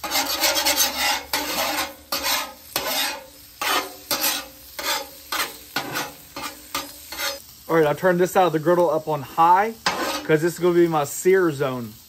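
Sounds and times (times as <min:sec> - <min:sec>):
spatula scraping metal griddle: 0:00.0 - 0:07.5, 0:09.3 - 0:10.5
fat sizzling: 0:00.0 - 0:12.0.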